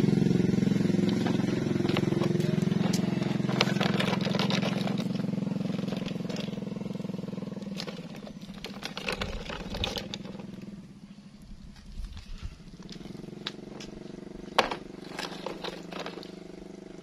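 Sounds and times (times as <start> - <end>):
vehicle engine running: 0.0 - 17.0
clicks and rattles: 1.0 - 6.6, 7.6 - 10.6, 11.8 - 16.5.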